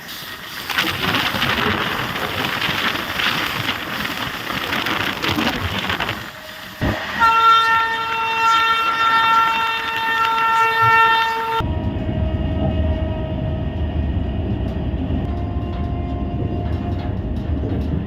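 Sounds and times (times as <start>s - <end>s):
train rumbling and wheels rattling: 0.0s - 18.0s
locomotive horn blast: 6.3s - 13.6s, 15.3s - 17.1s.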